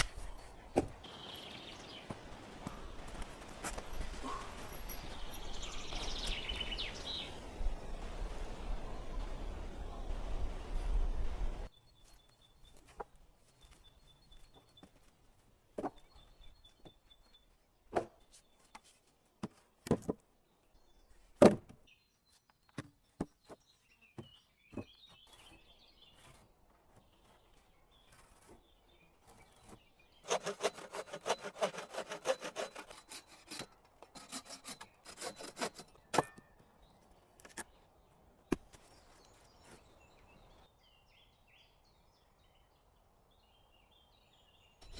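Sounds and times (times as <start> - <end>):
saw cutting wood: 30.2 - 36.0.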